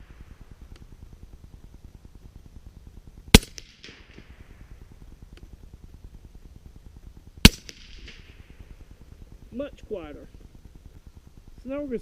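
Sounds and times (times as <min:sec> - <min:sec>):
suppressed rifle shots: 0:03.3 - 0:05.5, 0:07.4 - 0:09.1.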